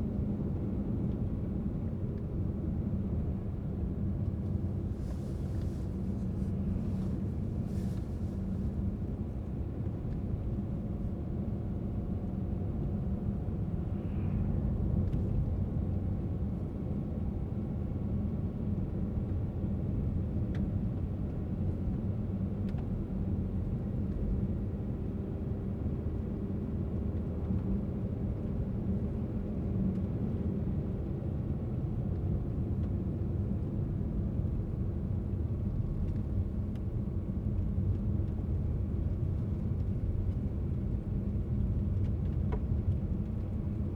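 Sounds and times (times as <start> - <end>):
car engine and tyre road noise: 0.3 - 43.9.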